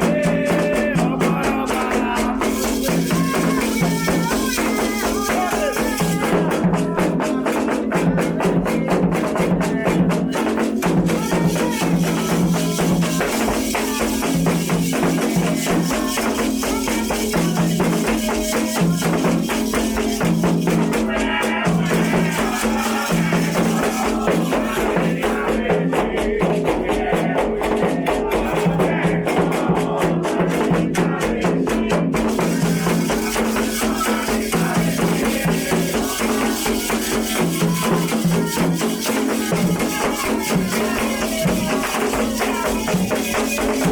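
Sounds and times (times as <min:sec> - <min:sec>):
fast drums: 0:00.0 - 0:43.9
shaken rattles: 0:01.7 - 0:06.3, 0:11.0 - 0:25.2, 0:32.3 - 0:43.9.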